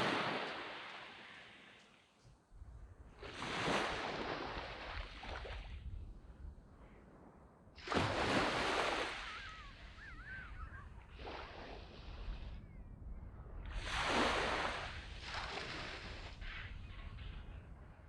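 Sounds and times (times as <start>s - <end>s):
sea waves washing up on beach: 0.0s - 2.1s, 3.2s - 5.8s, 7.8s - 12.5s, 13.7s - 16.7s
warbling bird call: 9.1s - 11.0s.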